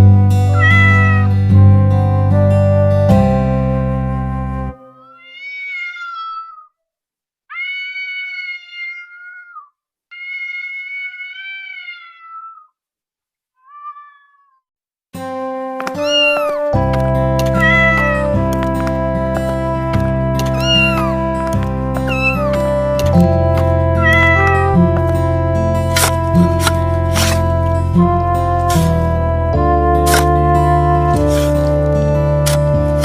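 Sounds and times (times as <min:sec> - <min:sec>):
background music: 0:00.0 - 0:05.1, 0:15.2 - 0:33.0
cat meowing: 0:00.5 - 0:01.3, 0:04.8 - 0:06.8, 0:07.5 - 0:12.8, 0:13.6 - 0:14.7, 0:16.0 - 0:16.7, 0:17.5 - 0:18.4, 0:20.4 - 0:21.2, 0:22.0 - 0:22.6, 0:23.8 - 0:24.9.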